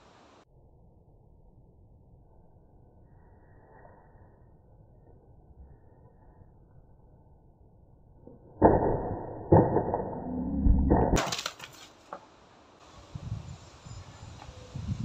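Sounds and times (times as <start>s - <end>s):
wood cracking and splintering: 9.5s - 11.9s.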